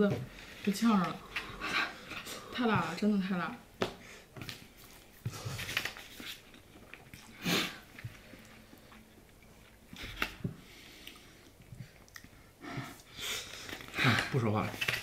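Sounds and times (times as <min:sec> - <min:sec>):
person chewing: 0:04.8 - 0:14.0.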